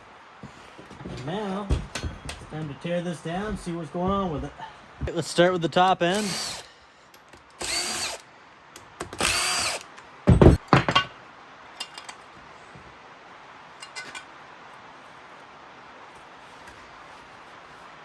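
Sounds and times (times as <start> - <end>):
loud clunk: 1.0 - 2.7, 10.3 - 11.2
cordless power tool whining: 6.1 - 6.7, 7.5 - 8.2, 9.0 - 10.6.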